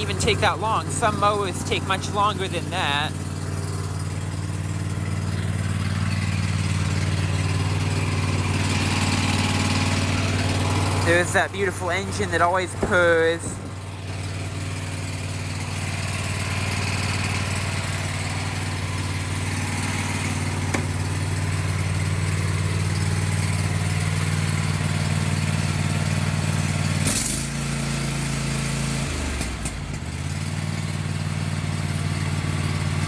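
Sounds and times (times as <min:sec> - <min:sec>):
riding mower engine idling: 0:00.0 - 0:33.0.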